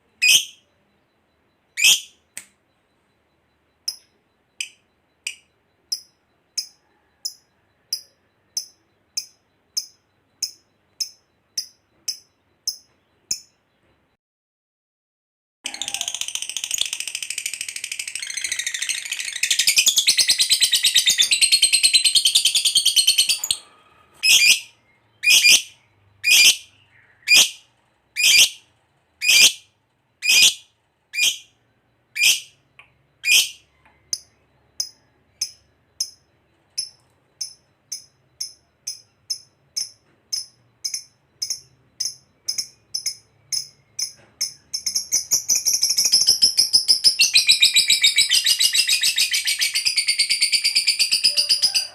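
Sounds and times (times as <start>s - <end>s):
bird chattering trill: 0.1s - 0.8s, 1.8s - 2.2s, 15.7s - 31.6s, 32.2s - 51.9s
sharp bird calls: 15.7s - 51.9s.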